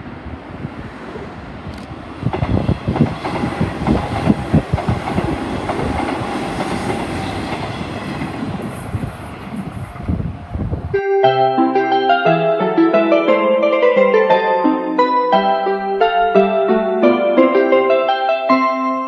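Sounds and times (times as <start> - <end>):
train wheels clattering over rail joints: 1.7 - 10.8.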